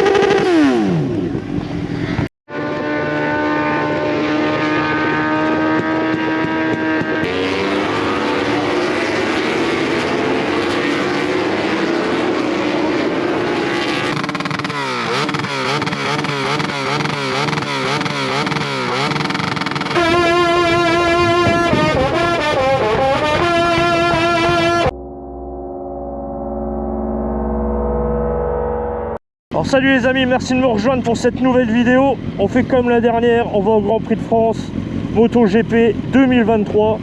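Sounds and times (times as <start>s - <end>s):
motorcycle engines revving: 0.0s - 24.9s, 30.3s - 37.0s
brass band music: 19.9s - 25.0s.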